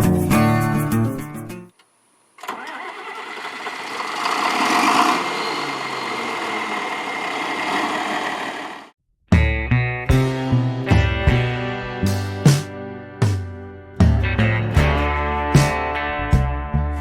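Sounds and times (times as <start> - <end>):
tractor diesel engine running: 2.4 - 9.0.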